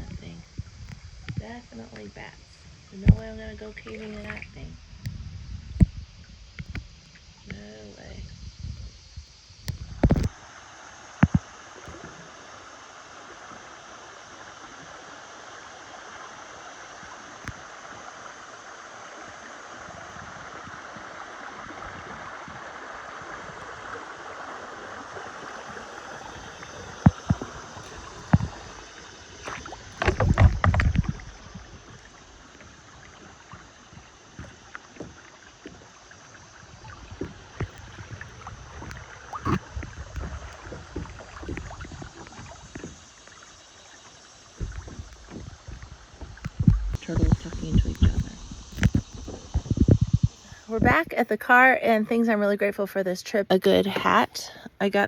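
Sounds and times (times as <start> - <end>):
rushing river water: 9.6 - 52.0
knocks against kayak hull: 27.0 - 28.8, 29.4 - 32.0.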